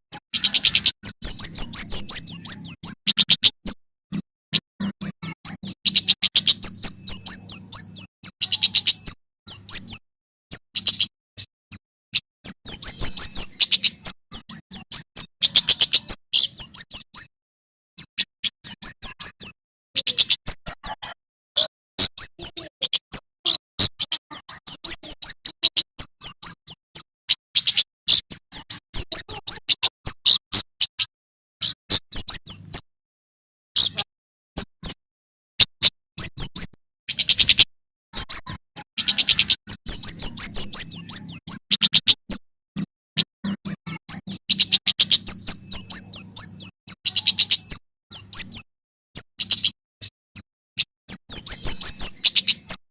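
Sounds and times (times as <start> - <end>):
bird singing sharp chirps: 0.1 - 17.3, 18.0 - 32.9, 35.6 - 50.5, 51.1 - 52.8.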